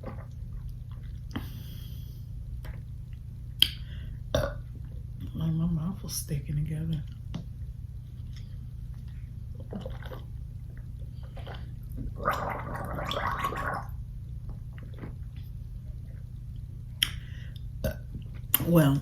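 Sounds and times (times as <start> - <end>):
steady low hum: 0.0 - 19.0
person gargling: 4.4 - 4.6, 12.0 - 14.0.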